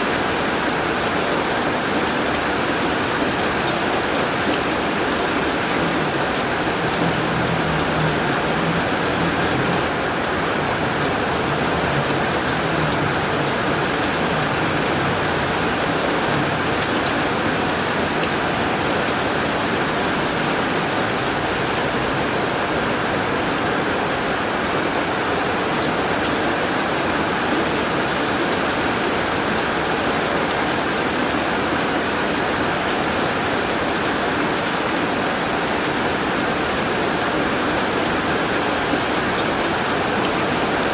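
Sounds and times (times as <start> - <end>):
heavy rain on a tin roof: 0.0 - 40.9.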